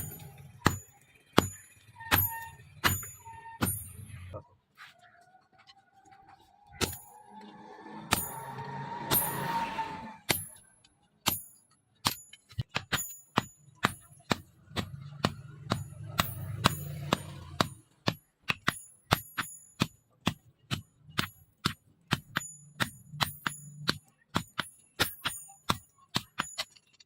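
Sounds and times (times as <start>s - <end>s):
hammer striking steel on anvil: 0.0s - 4.2s, 6.8s - 27.0s
low hum: 6.3s - 10.3s.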